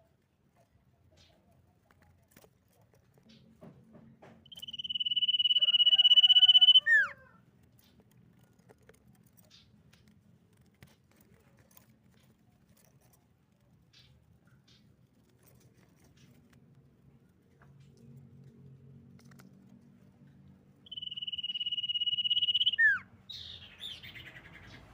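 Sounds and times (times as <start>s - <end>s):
faint low hum: 0.0s - 24.9s
bird whistled song: 4.5s - 7.2s, 20.9s - 24.8s.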